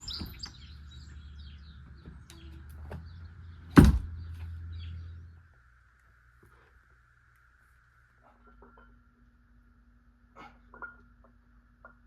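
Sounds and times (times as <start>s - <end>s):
birds chirping: 0.0s - 5.9s
loud thump: 3.7s - 4.2s.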